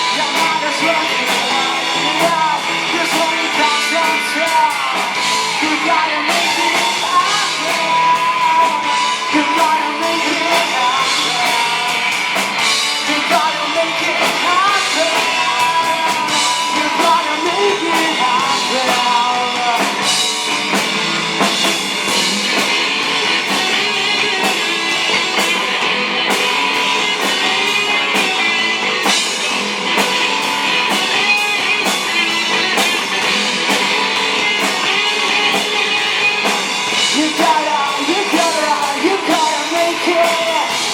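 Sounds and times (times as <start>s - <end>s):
person singing: 0.0s - 20.9s, 30.2s - 40.9s
drum kit: 0.0s - 40.9s
electric guitars: 0.0s - 40.9s.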